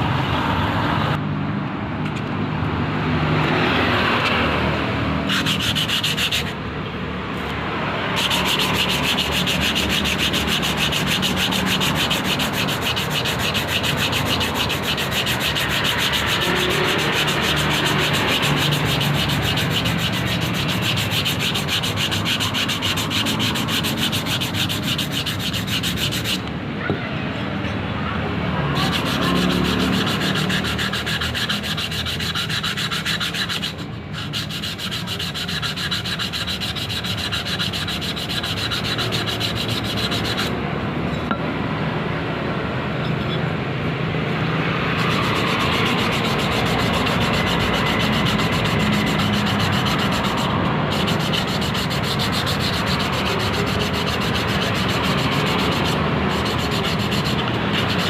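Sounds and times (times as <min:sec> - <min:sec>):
abrasive sanding on metal: 0:05.3 - 0:06.6, 0:08.1 - 0:26.5, 0:28.7 - 0:40.5, 0:44.8 - 0:58.0.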